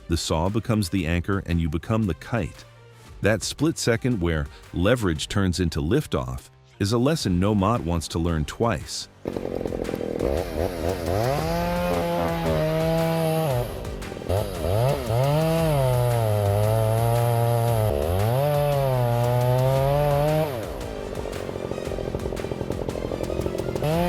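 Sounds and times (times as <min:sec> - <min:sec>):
chainsaw revving: 0:09.2 - 0:24.0.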